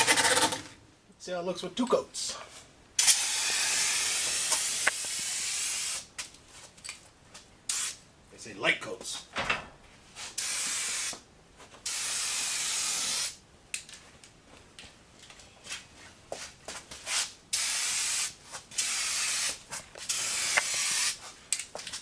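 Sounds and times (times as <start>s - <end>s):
paint spray hissing: 3.0s - 6.1s, 7.7s - 8.0s, 10.4s - 11.2s, 11.8s - 13.4s, 17.6s - 21.2s.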